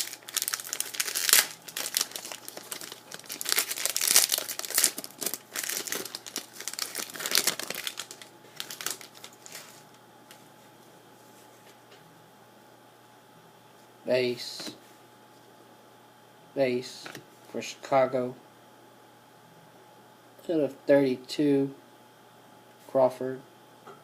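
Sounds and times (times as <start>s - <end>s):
card pack wrapper crinkling: 0.0s - 9.9s.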